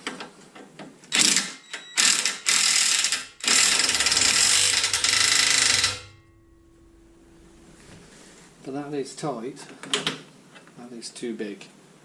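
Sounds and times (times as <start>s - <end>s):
socket ratchet clicking: 1.2s - 6.2s.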